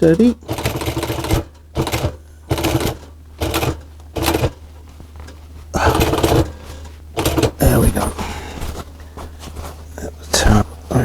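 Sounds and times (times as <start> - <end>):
sewing machine stitching: 0.0 - 4.6, 5.8 - 8.3
steady low hum: 0.0 - 11.0.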